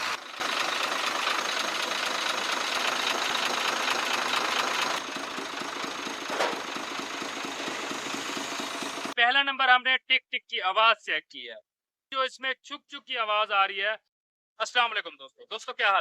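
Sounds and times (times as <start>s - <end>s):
diesel engine ticking knock: 0.2s - 9.2s.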